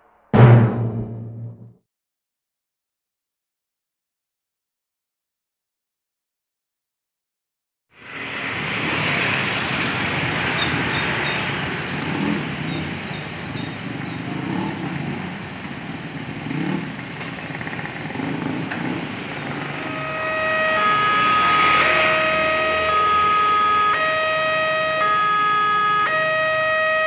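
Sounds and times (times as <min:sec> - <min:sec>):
motorcycles and cars passing: 0:08.0 - 0:26.6
crossing warning tone: 0:08.5 - 0:27.0.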